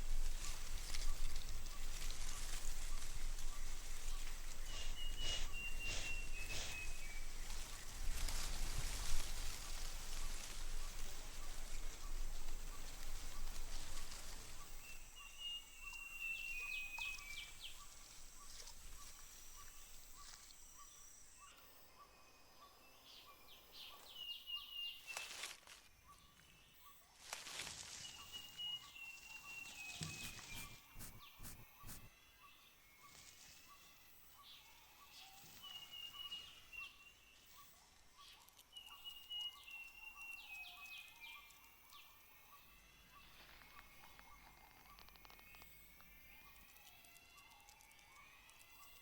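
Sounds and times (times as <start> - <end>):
bird chirping: 3.4 - 7.5, 28.2 - 32.1
faint pulsing call: 4.7 - 7.1, 30.0 - 32.1.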